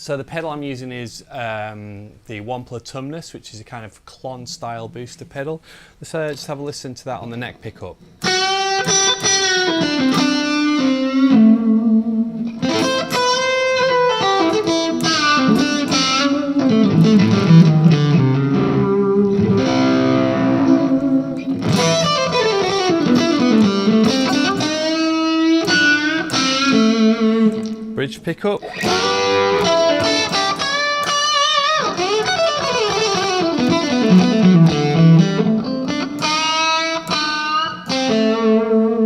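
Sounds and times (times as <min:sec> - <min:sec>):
electric guitar playing: 0:08.2 - 0:39.0.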